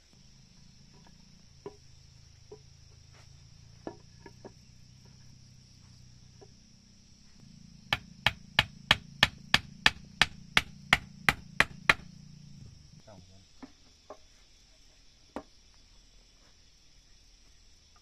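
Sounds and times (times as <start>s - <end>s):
insect chorus droning: 0.0s - 18.0s
hammer driving a nail into wood: 8.0s - 12.1s.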